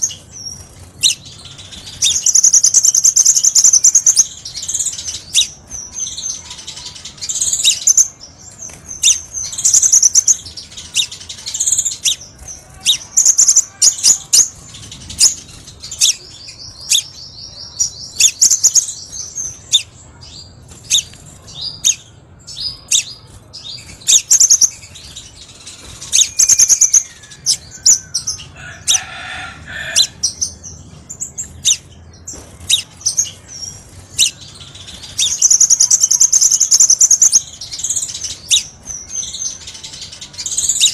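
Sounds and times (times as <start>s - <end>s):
fast bird trill: 0.0s - 19.9s, 20.8s - 29.2s, 31.6s - 40.9s
bird chirping and twittering: 0.0s - 40.9s.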